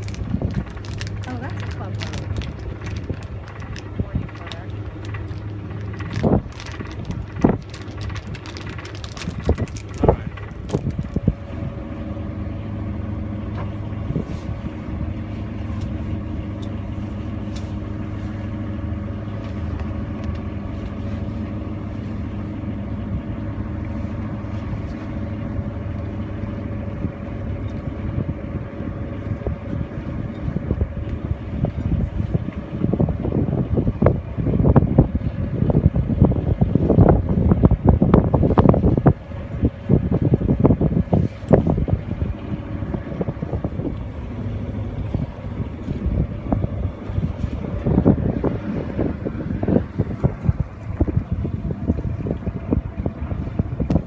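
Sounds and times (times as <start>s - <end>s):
boat engine humming: 0.0s - 54.0s.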